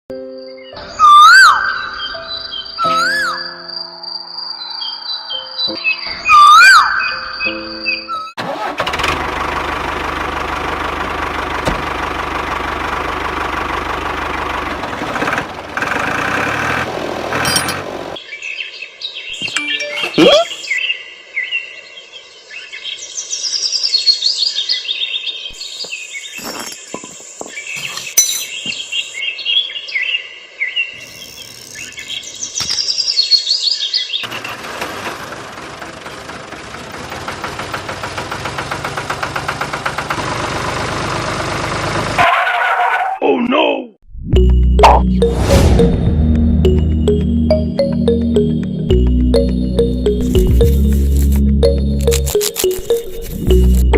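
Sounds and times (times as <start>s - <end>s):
birds chirping and tweeting: 0.4s - 8.3s, 17.2s - 34.5s.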